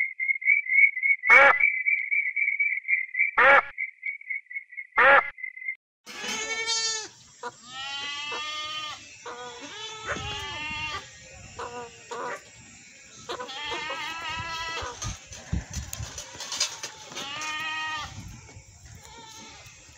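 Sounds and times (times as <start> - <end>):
sheep bleating: 6.1 - 11.0, 13.2 - 15.1, 16.5 - 18.2.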